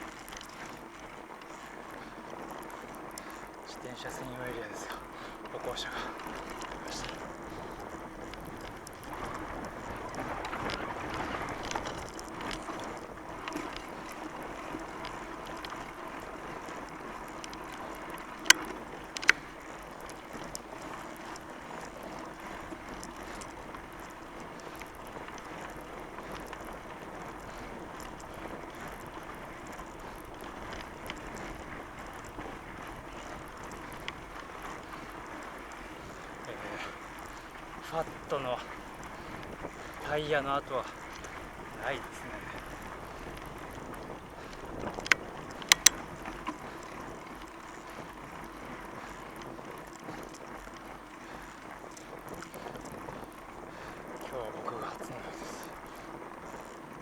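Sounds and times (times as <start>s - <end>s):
tyre and wind noise: 0.0s - 57.0s
sharp clicks: 17.4s - 19.5s, 44.5s - 46.6s.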